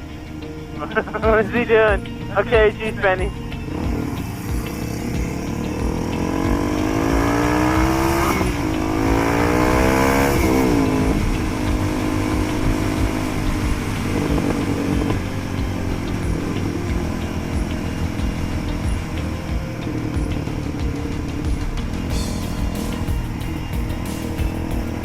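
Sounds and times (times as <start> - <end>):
motorcycle engine accelerating: 0.0 - 25.0
wind buffeting microphone: 10.4 - 19.7.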